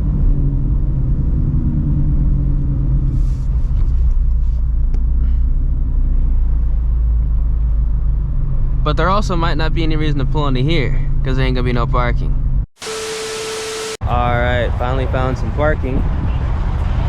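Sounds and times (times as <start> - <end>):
car engine rumbling at low revs: 0.0 - 12.7.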